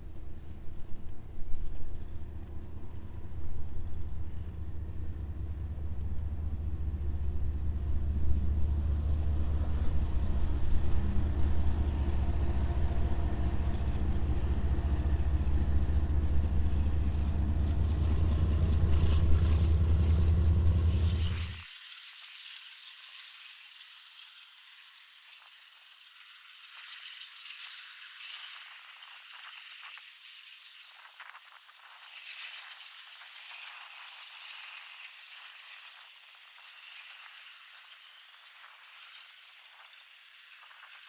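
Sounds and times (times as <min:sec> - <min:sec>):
diesel locomotive engine drone: 0:00.0 - 0:21.7.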